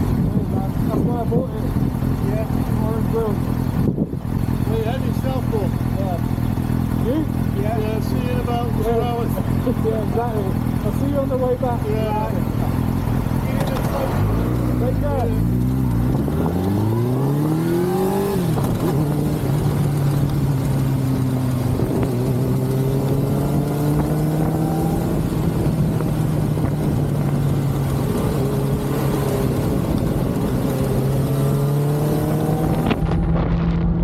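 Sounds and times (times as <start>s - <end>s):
motorcycle engine revving: 0.0s - 34.0s
wind rush: 32.3s - 34.0s.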